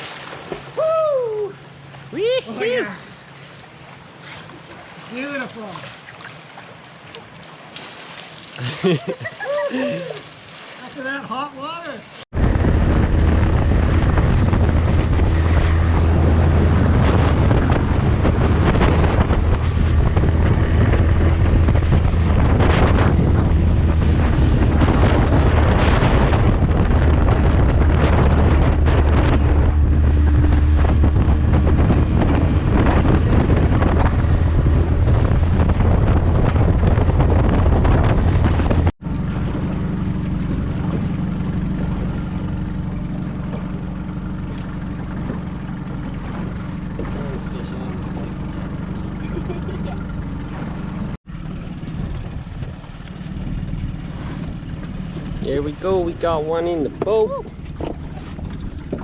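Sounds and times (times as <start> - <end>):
motorboat engine running: 0.0 - 59.0
wind buffeting microphone: 12.3 - 59.0.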